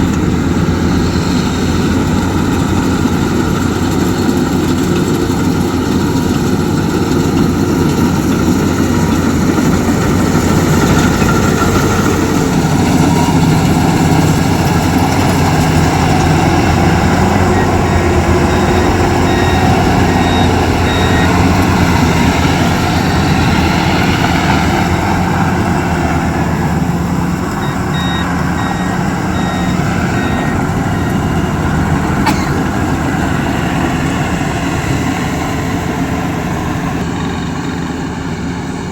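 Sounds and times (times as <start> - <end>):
heavy machine engine running: 0.0 - 38.9
high electronic beeps: 16.7 - 22.4, 27.3 - 31.5.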